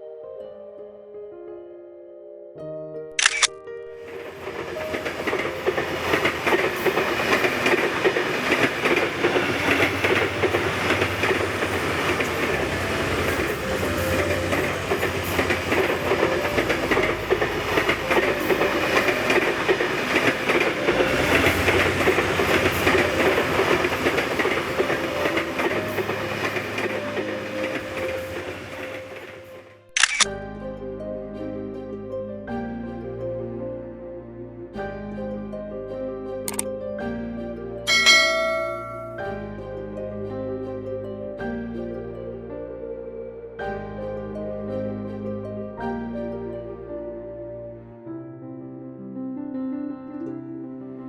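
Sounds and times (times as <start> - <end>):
soft background music: 0.0 - 51.0
train wheels rattling on rails: 4.0 - 29.9, 37.9 - 39.4.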